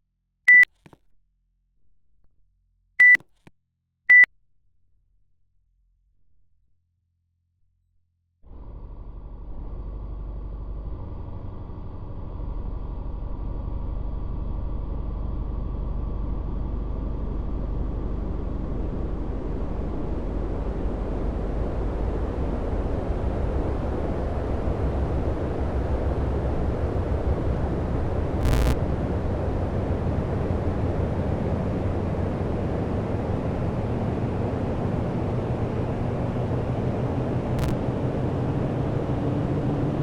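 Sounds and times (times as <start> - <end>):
air conditioner whirring: 15.7 - 40.0
faint steady tones: 28.4 - 28.8.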